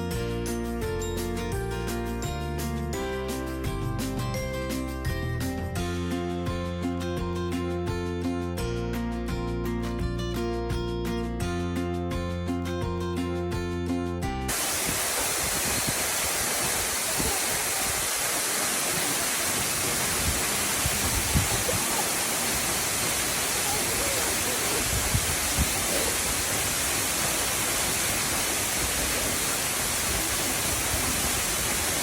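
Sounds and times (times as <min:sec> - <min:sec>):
waterfall pouring: 0:14.5 - 0:32.0.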